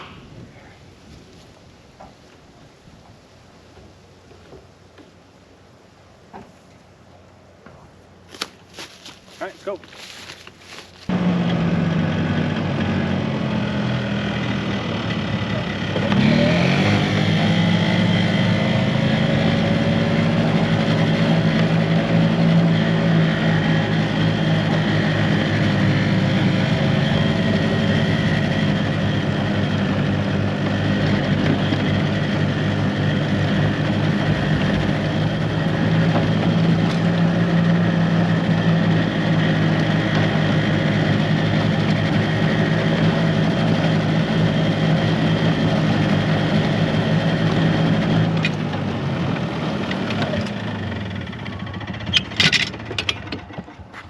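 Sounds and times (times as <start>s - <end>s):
vehicle engine running: 8.1s - 54.0s.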